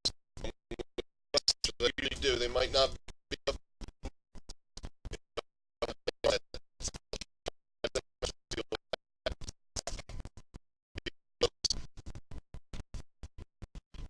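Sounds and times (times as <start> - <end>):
scratchy rustling noise: 1.9 - 3.9, 11.7 - 14.0.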